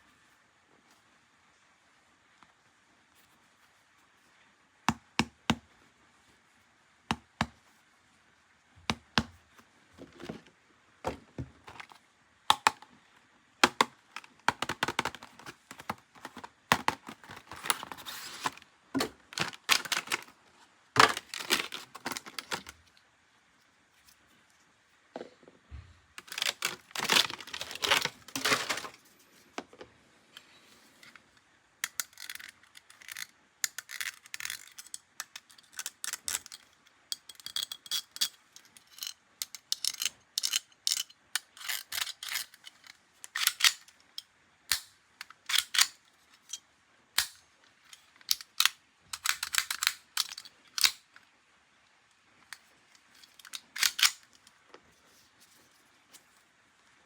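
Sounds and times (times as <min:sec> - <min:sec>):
plastic toy parts clicking: 0:11.7 - 0:12.9, 0:13.6 - 0:20.4, 0:21.0 - 0:22.8, 0:26.2 - 0:28.9, 0:31.8 - 0:46.6, 0:47.2 - 0:51.2, 0:52.4 - 0:54.6
packaging crinkling: 0:13.6 - 0:20.4, 0:21.0 - 0:22.8, 0:26.2 - 0:29.0.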